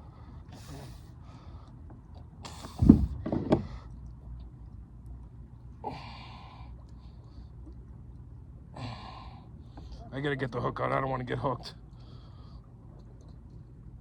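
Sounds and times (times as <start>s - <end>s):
loud knocks with thud: 2.8s - 3.7s.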